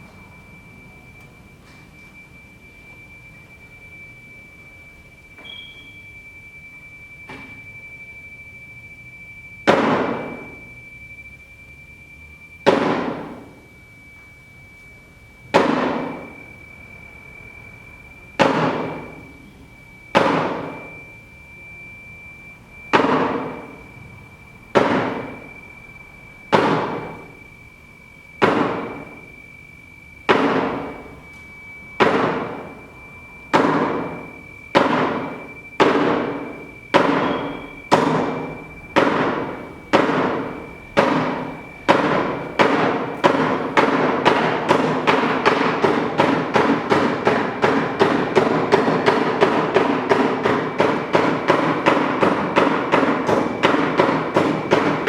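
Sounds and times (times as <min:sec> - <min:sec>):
steady high thin tone: 0:00.0 - 0:55.0
sharp ringing struck hits: 0:09.7 - 0:10.7, 0:28.4 - 0:29.3, 0:30.3 - 0:31.2, 0:32.0 - 0:55.0.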